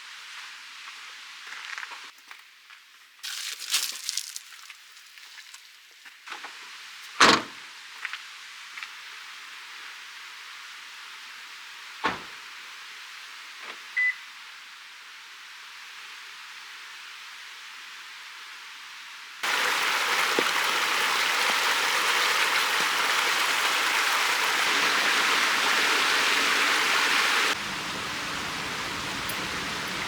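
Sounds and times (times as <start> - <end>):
steady hiss: 8.1 - 30.0
thuds: 12.0 - 12.4.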